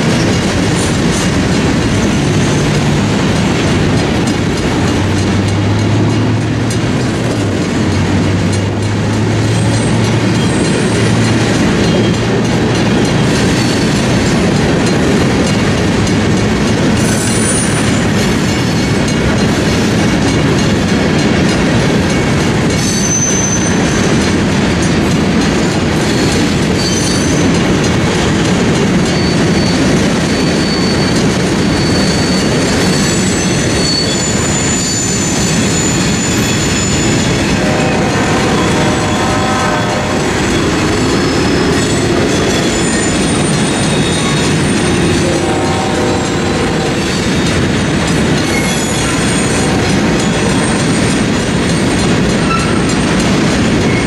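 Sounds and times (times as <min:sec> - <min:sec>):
freight train wheels clattering: 0:00.0 - 0:54.0
high-pitched wheel squeals: 0:22.8 - 0:24.0, 0:26.2 - 0:27.5, 0:29.1 - 0:47.6, 0:48.4 - 0:51.3.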